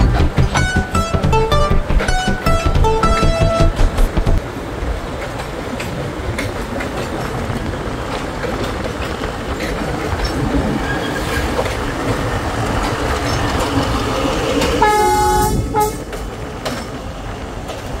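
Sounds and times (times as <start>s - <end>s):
train wheels rumbling and clacking: 0.0s - 18.0s
train horn: 14.8s - 16.1s.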